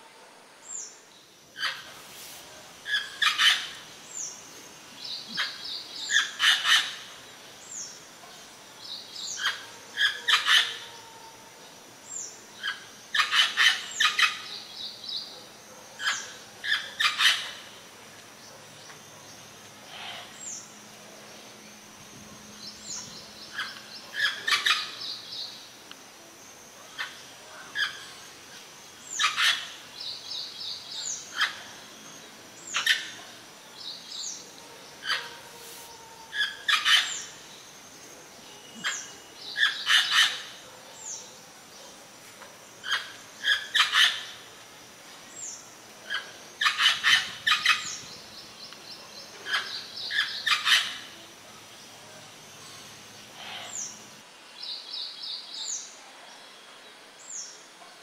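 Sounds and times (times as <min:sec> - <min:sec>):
sharp bird calls: 0:38.5 - 0:41.3, 0:45.4 - 0:51.2.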